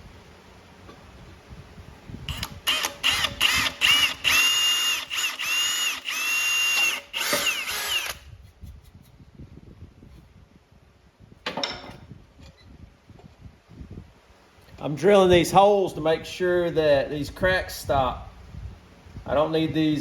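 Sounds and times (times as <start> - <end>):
power drill whining: 2.3 - 8.3.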